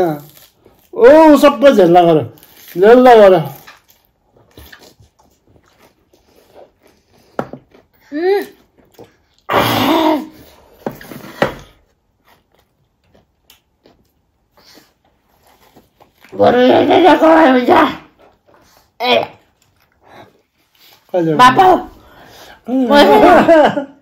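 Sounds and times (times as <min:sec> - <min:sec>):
person chewing: 0:03.5 - 0:09.5, 0:11.8 - 0:16.4.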